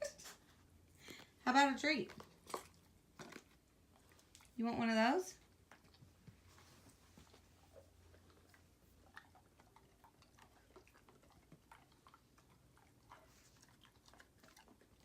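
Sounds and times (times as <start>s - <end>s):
dogs chewing hard treats: 1.0s - 4.6s, 7.8s - 15.0s.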